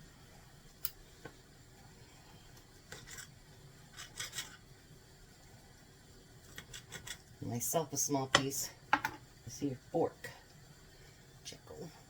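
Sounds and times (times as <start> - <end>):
knife scraping strokes: 2.9 - 4.6.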